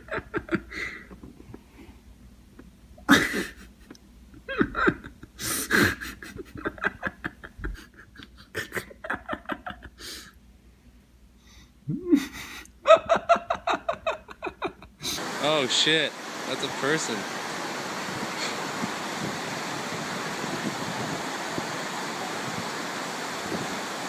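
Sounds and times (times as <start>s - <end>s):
person laughing and panting: 0.0s - 1.9s, 2.6s - 10.3s, 12.0s - 15.2s, 18.2s - 18.9s.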